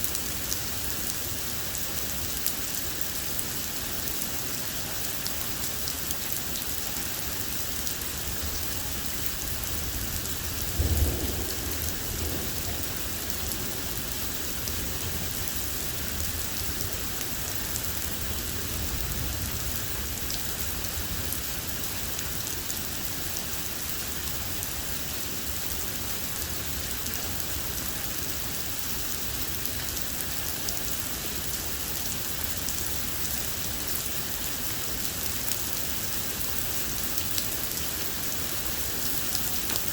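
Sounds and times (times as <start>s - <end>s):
rain falling: 0.0s - 39.9s
rumble of thunder: 9.7s - 15.4s
thunderclap: 10.6s - 14.3s.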